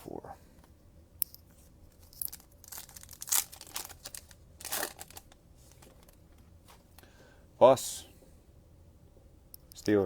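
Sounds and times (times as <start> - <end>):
cards rustling in hands: 1.6 - 6.9.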